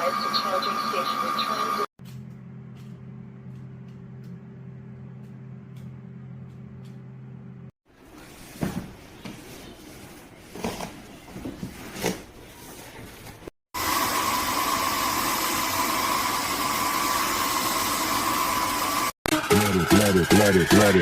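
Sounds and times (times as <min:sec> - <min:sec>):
vacuum mop motor whine: 0:13.8 - 0:19.1.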